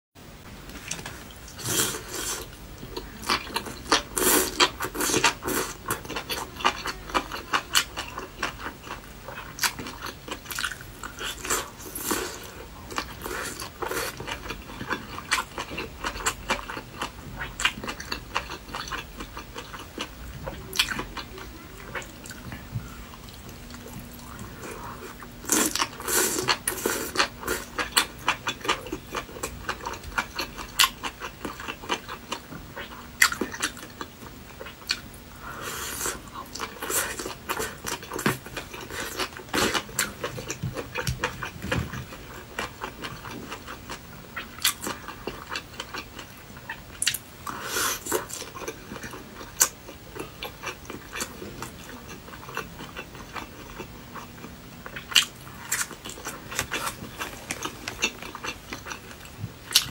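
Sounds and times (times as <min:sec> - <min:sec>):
chewing and biting food: 0:21.9 - 0:35.1, 0:36.0 - 0:59.9.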